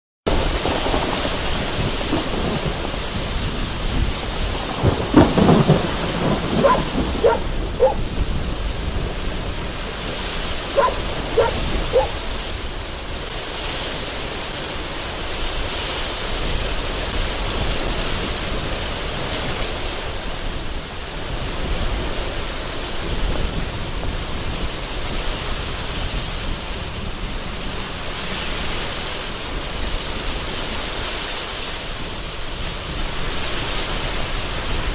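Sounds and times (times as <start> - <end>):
thunder cracking: 0.3 - 12.4
gusty wind: 0.3 - 34.9
heavy rain beating on window: 0.3 - 34.9.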